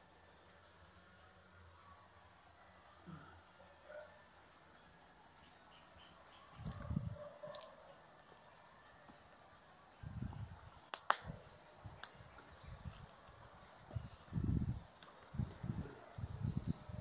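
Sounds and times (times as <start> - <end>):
sharp clicks: 10.9 - 11.4.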